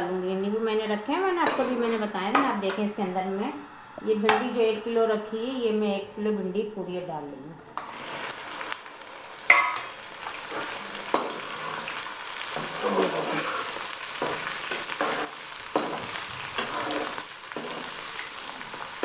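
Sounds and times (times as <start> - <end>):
metal spoon scraping a pan: 1.4 - 2.8, 9.5 - 18.8
okra sizzling in hot oil: 7.8 - 19.0.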